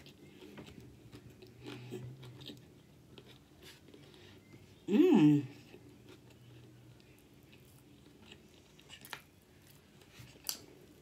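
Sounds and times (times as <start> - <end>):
chewing crunches: 0.0 - 4.1.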